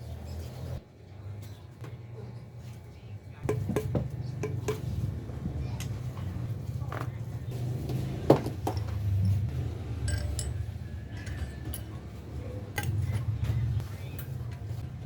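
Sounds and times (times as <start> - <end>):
metal tools clinking: 8.4 - 14.5.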